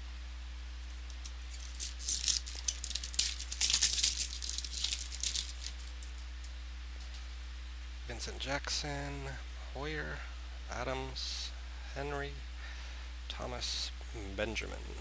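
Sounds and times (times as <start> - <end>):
card pack crinkling rustle: 0.8 - 6.5.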